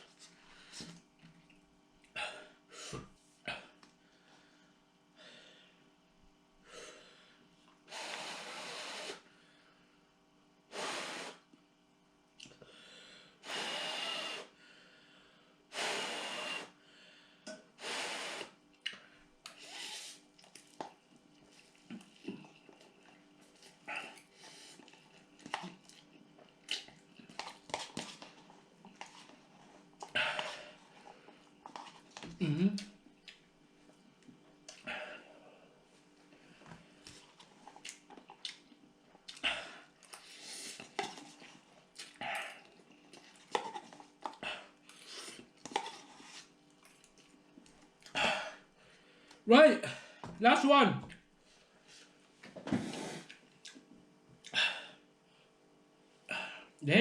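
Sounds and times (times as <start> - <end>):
person sniffing: 7.9 - 9.2, 10.7 - 11.4, 13.4 - 14.6, 15.7 - 16.8, 17.8 - 18.6, 19.5 - 20.2, 52.7 - 53.4.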